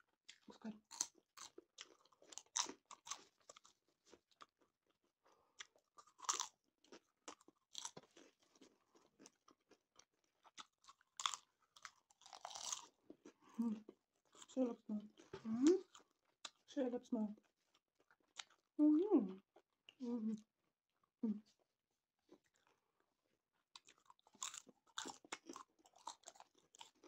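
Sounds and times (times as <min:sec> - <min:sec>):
popcorn crunching and chewing: 0:00.3 - 0:16.7, 0:17.4 - 0:18.7, 0:22.2 - 0:27.0.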